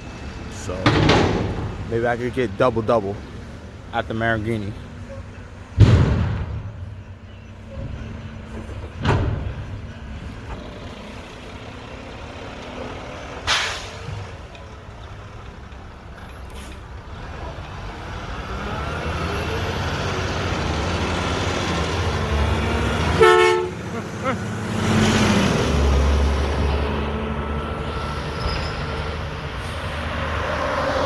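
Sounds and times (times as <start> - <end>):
garbage truck diesel rumble: 0.0 - 31.0
sharp bang: 5.8 - 7.1
air brake hiss: 13.5 - 14.0.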